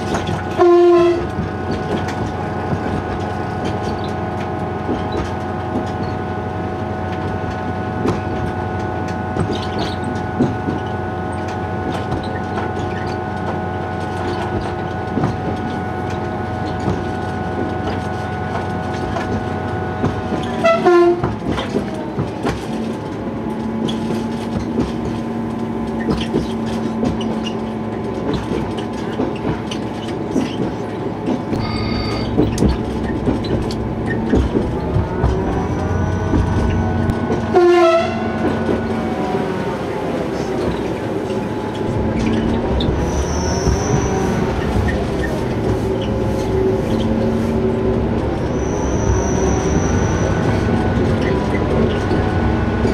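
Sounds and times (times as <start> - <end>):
diesel train engine drone: 0.0 - 52.9
rail-joint clicks: 0.0 - 52.9
brief high tone: 31.6 - 32.5.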